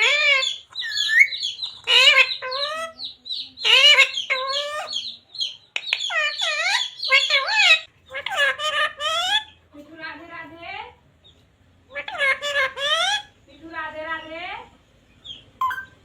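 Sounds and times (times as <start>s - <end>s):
parrot calling: 0.0s - 9.6s, 11.9s - 13.4s, 15.2s - 16.0s.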